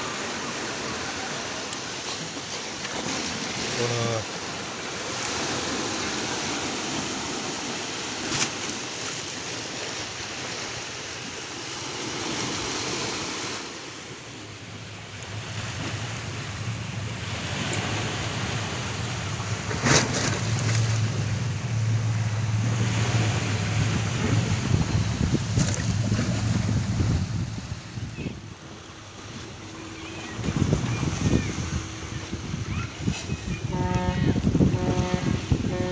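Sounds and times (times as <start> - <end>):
sharp water splashes: 0.0 - 13.8, 14.5 - 28.1
sea waves washing against ship: 0.0 - 35.9
low ship engine drone: 11.6 - 35.9
wind buffeting microphone: 14.7 - 35.9.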